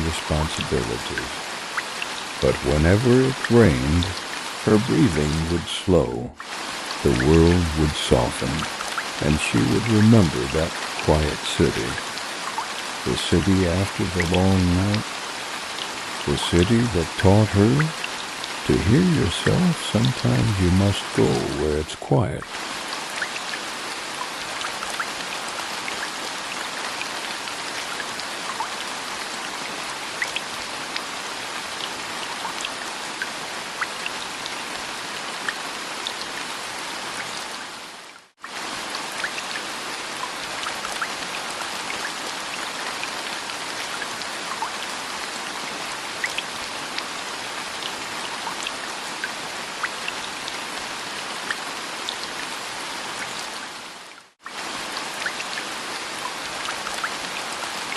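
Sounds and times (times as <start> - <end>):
steady rain hiss: 0.0 - 57.9
raindrop ticks: 18.8 - 21.6.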